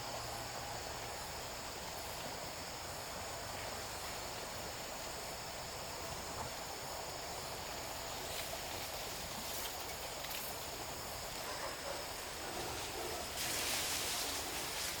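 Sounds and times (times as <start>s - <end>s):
constant hiss: 0.0s - 15.0s
high insect drone: 0.0s - 15.0s.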